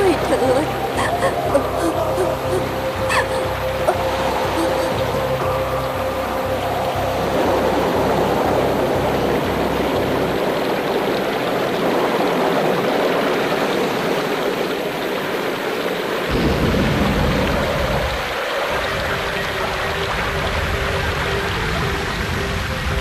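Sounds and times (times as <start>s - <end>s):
low pulsing music notes: 0.0s - 15.2s, 16.8s - 23.0s
wind and rain rushing: 0.0s - 23.0s
deep thunder rumble: 16.3s - 23.0s.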